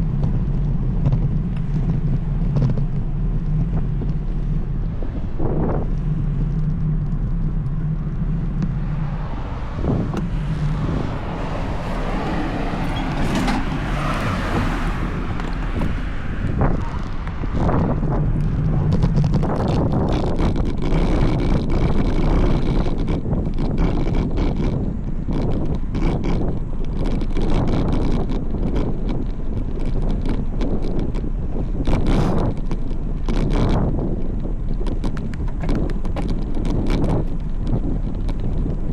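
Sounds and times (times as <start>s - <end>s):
bicycle road noise: 0.0s - 38.9s
wind rushing over microphone: 0.0s - 38.9s
knocks and rattles: 9.8s - 21.9s.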